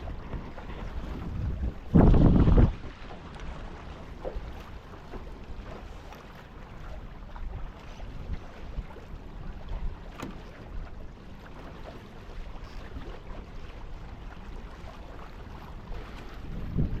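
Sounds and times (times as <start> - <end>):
wind rumbling on microphone: 0.0 - 4.9, 6.8 - 17.0
water washing along hulls: 0.0 - 17.0.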